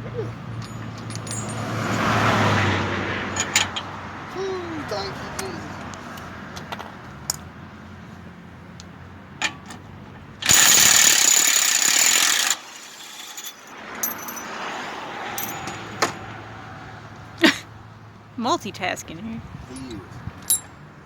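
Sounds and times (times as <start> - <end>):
metal tool clinks: 0.5 - 2.1, 13.2 - 14.6, 15.4 - 15.9, 19.8 - 20.8
impact wrench burst: 10.4 - 13.6.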